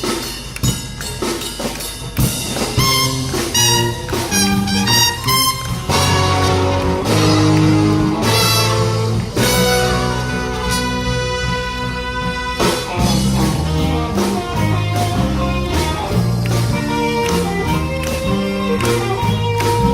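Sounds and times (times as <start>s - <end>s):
big band playing jazz: 0.0s - 19.9s.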